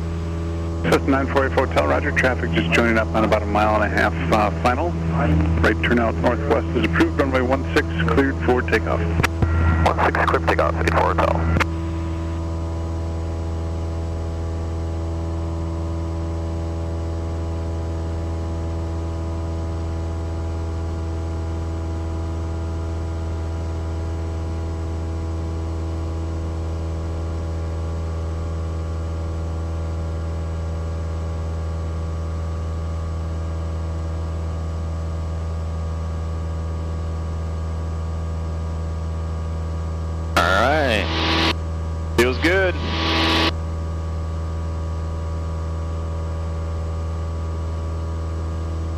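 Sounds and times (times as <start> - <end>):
airplane engine and propeller droning: 0.0 - 48.9.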